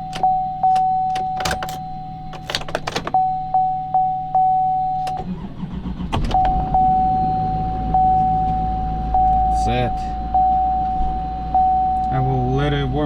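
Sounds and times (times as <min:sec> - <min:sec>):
electronic warning chime: 0:03.1 - 0:05.3, 0:06.3 - 0:13.0
engine cranking and starting: 0:05.0 - 0:08.4.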